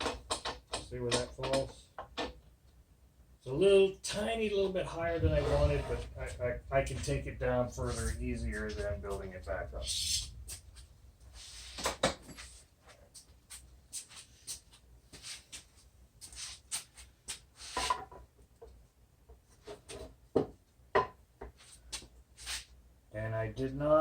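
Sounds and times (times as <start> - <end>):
wood and hand tools knocking: 0.0 - 2.4.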